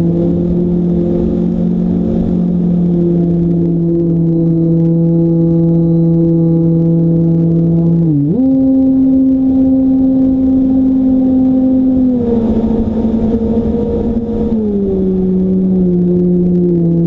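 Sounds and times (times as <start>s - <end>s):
rushing wind: 0.0s - 17.0s.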